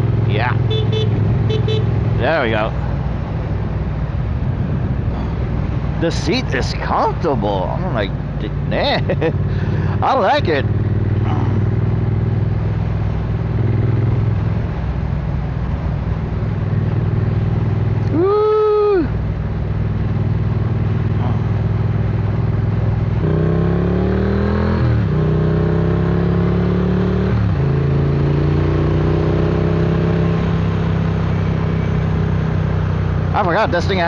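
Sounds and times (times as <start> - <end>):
motorcycle engine revving with upshifts: 8.5 - 14.8, 19.5 - 34.0.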